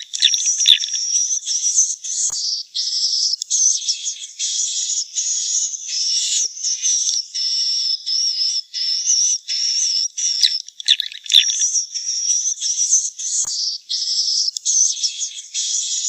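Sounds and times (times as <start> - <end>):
swiftlet twittering chirps: 0.0 - 2.0, 8.8 - 13.4.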